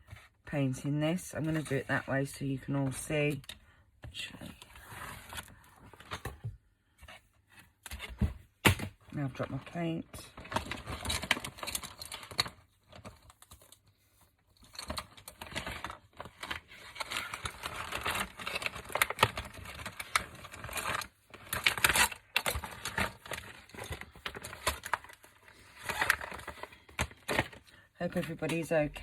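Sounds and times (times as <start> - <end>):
craft supplies clicking and rustling: 14.7 - 29.0.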